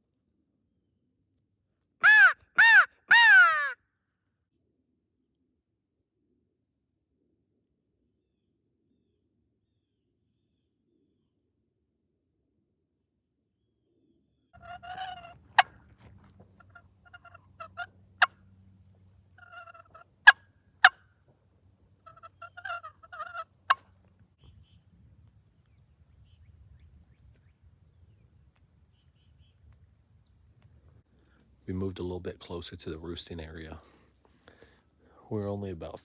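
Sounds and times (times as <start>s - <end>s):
turkey call yelping: 2.0s - 3.8s, 14.6s - 15.7s, 16.6s - 18.4s, 19.4s - 21.0s, 22.0s - 23.8s.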